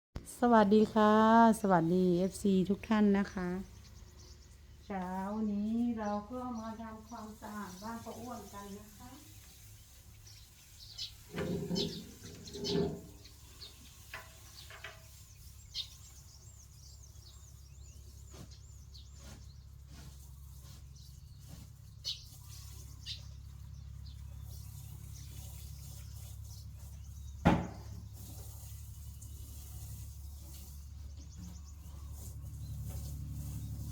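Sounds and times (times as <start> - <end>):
small birds chirping: 0.4 - 33.9
clattering knocks: 11.3 - 13.2
sharp loud knock: 27.4 - 27.9.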